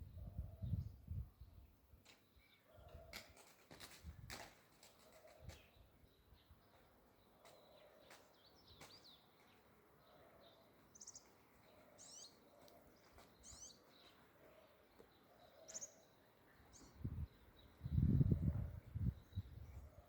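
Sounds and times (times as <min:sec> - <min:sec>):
birds chirping: 0:04.8 - 0:20.0.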